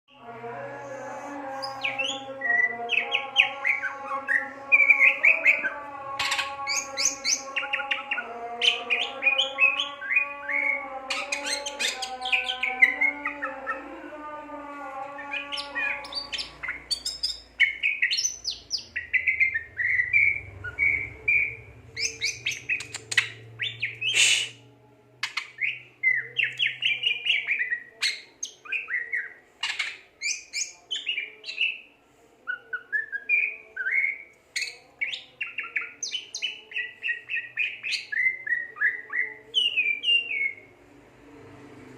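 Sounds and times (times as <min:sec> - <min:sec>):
bird singing chirps and trills: 0:01.6 - 0:13.9, 0:15.0 - 0:24.4, 0:25.2 - 0:31.9.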